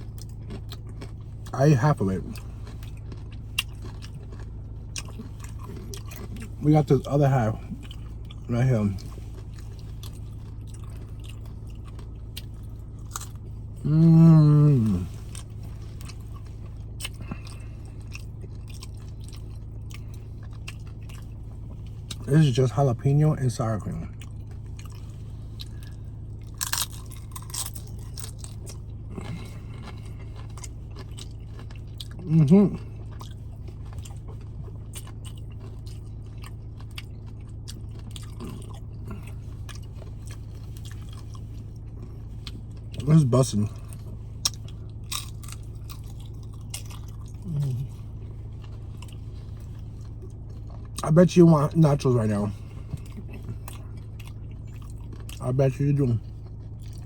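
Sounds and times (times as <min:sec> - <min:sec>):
chewing crunchy chips: 0:00.0 - 0:57.0
steady low hum: 0:00.0 - 0:57.0
person humming mmm: 0:13.8 - 0:15.2, 0:47.4 - 0:48.0.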